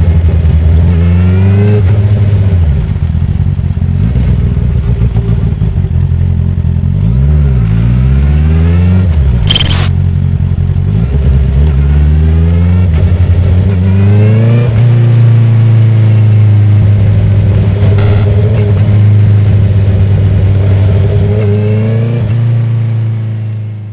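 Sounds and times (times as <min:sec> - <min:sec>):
motorcycle engine through gears: 0:09.5 - 0:09.9, 0:18.0 - 0:18.6.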